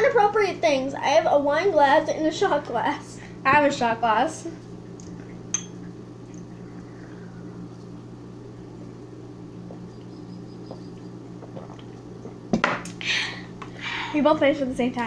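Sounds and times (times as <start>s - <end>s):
appliance electrical hum: 0.0s - 15.0s
people gulping: 4.9s - 13.7s.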